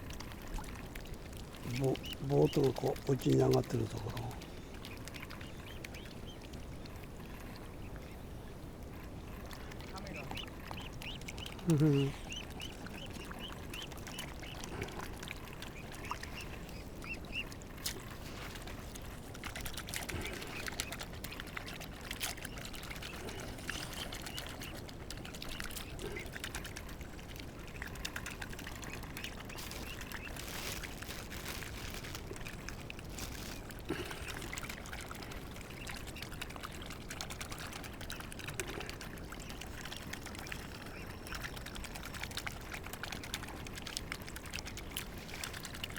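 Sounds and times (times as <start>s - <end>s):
water trickling: 0.0s - 8.2s, 8.8s - 45.9s
soft bird calls: 1.6s - 18.6s, 28.6s - 30.9s.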